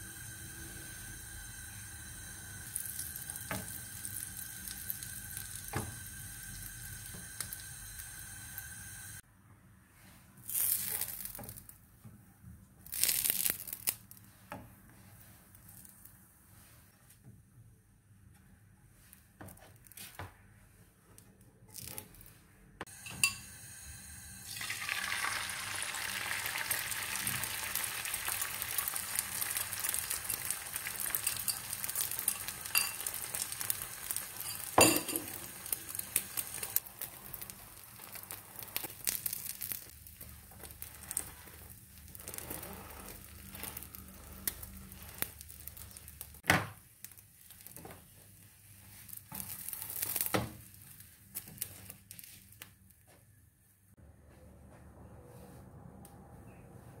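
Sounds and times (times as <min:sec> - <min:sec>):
food sizzling in a frying pan: 0:00.0 - 0:09.2, 0:22.9 - 0:46.4
kitchenware clinks: 0:34.4 - 0:35.4.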